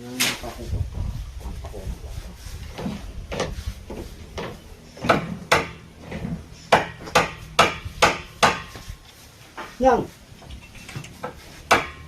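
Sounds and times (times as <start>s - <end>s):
hammer driving nail into wood: 6.7s - 8.8s, 11.2s - 12.0s.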